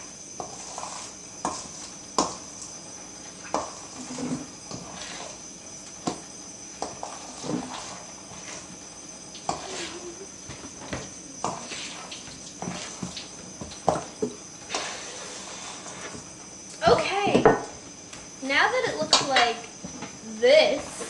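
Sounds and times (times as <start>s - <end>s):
utensil stirring thick batter: 0.0s - 16.5s.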